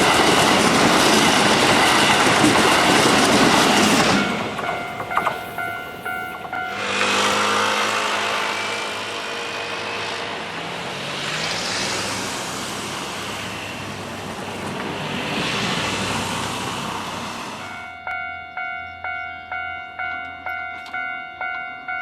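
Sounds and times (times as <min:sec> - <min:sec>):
train motor whine: 0:00.0 - 0:18.3
train wheel and track noise: 0:00.0 - 0:22.0
level-crossing bell: 0:01.6 - 0:09.0, 0:17.5 - 0:22.0.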